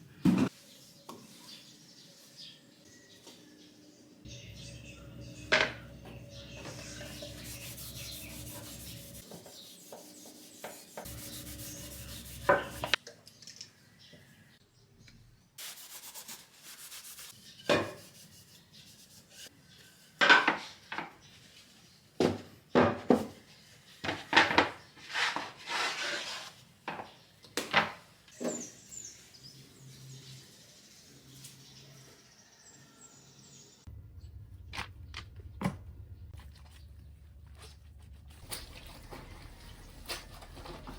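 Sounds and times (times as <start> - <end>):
sharp scraping strokes: 6.8 - 13.0
scrubbing wooden boards: 7.0 - 13.0.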